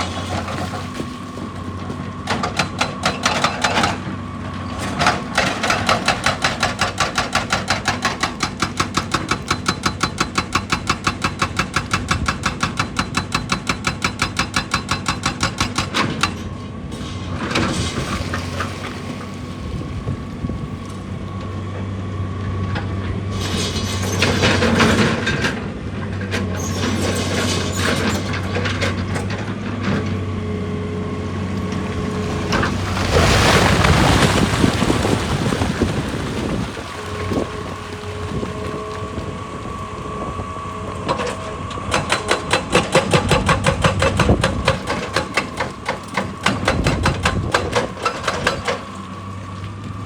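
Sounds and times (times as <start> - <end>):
hydraulic breaker hammering rock: 2.2 - 16.6, 41.0 - 49.4
diesel engine running: 16.1 - 50.0
scraping and rumbling: 31.1 - 41.9.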